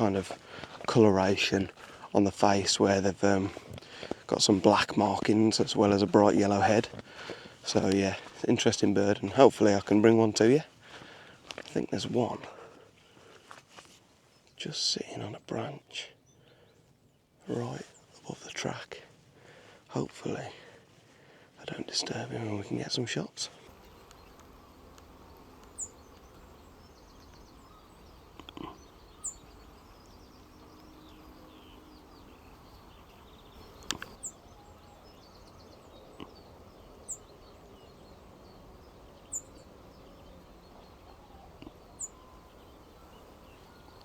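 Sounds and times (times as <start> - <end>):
birds twittering: 0.0 - 44.0
songbird calling high notes: 23.7 - 44.0.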